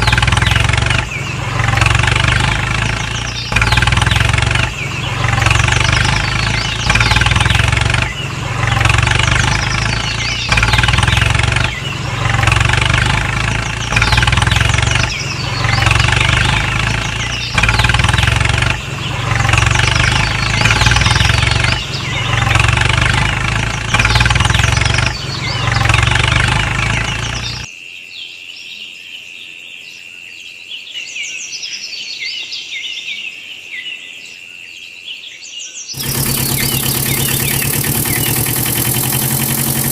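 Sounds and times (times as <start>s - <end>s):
birds chirping: 0.0s - 27.7s, 35.9s - 39.9s
tractor engine pulsing: 0.0s - 27.7s, 36.0s - 39.9s.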